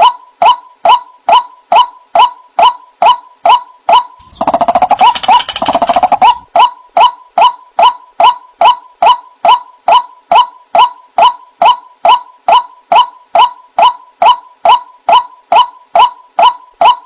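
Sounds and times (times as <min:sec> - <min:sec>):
bird fast chattering notes: 0:03.5 - 0:08.3
waterhen calling: 0:04.2 - 0:06.5.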